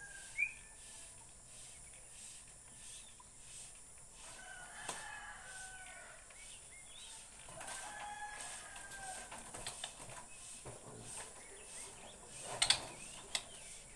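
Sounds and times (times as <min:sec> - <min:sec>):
rooster crowing: 0:00.0 - 0:00.7, 0:04.2 - 0:06.4, 0:07.4 - 0:09.6
whistled bird notes: 0:00.0 - 0:00.8.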